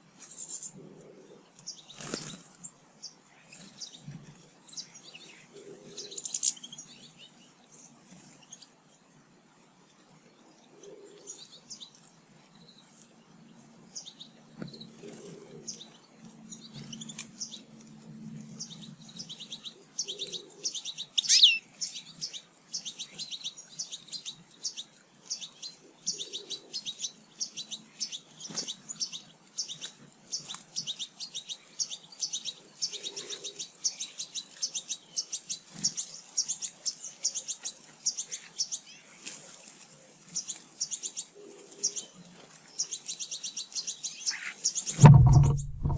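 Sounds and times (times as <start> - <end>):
songbirds chirping: 0.0 - 45.9
downward-sweeping bird call: 21.2 - 21.6.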